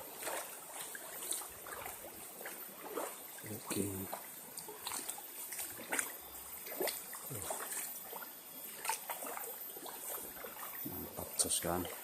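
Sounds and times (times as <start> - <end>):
water trickling in stream: 0.0 - 12.0.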